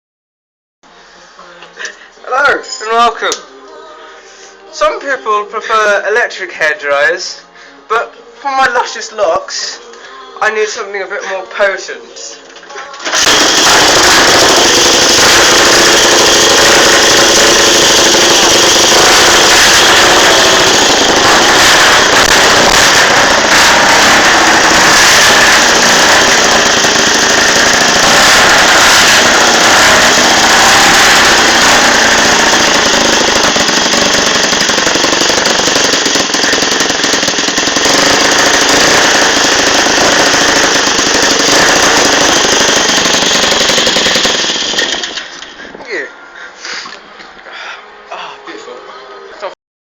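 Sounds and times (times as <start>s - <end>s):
motorcycle engine running hard: 13.1s - 45.3s.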